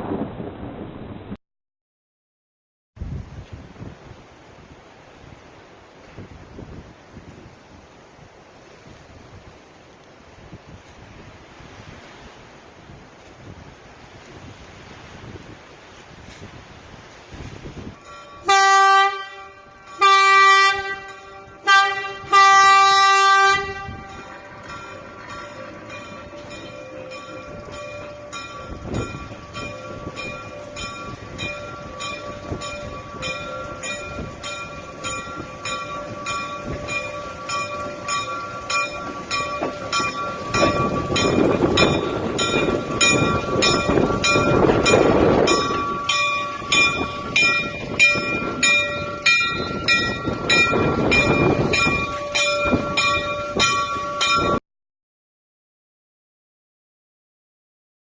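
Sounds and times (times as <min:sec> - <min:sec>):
wind buffeting microphone: 0:03.0 - 0:54.6
electric railway car whine: 0:17.0 - 0:54.6.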